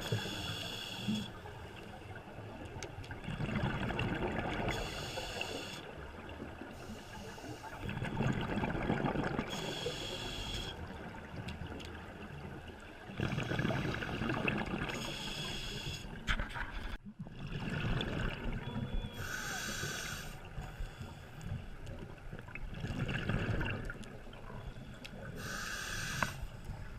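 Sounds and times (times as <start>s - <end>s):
exhaled bubbles rumbling: 2.4s - 4.8s, 7.8s - 9.5s, 10.9s - 15.1s, 16.2s - 19.1s, 22.0s - 24.8s.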